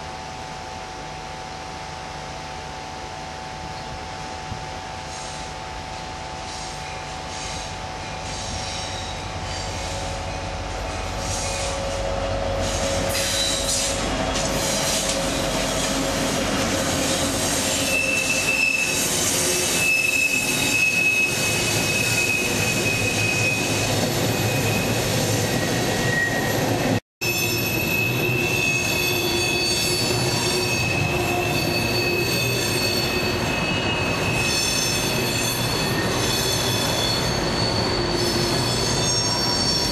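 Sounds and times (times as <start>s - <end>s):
freight train rolling past: 0.0s - 39.9s
steel wheels squealing: 6.4s - 39.9s.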